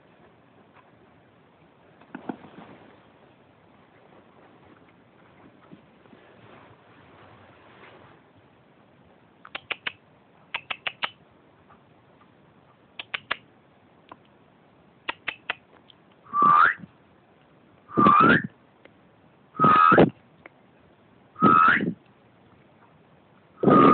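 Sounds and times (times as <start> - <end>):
whistle long toots: 16.3 - 16.9, 17.9 - 18.5, 19.6 - 20.1, 21.4 - 22.0, 23.6 - 23.9
whistle short chirps: 16.3 - 16.9, 17.9 - 18.5, 19.6 - 20.1, 21.4 - 22.0, 23.6 - 23.9.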